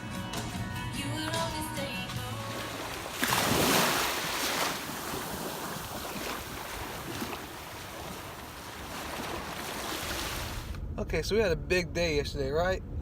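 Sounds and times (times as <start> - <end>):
ocean surf washing in: 2.3 - 10.8.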